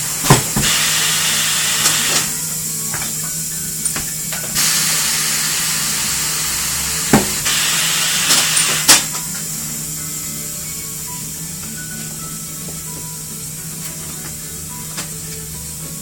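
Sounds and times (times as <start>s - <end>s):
compressed air hissing: 0.0s - 16.0s.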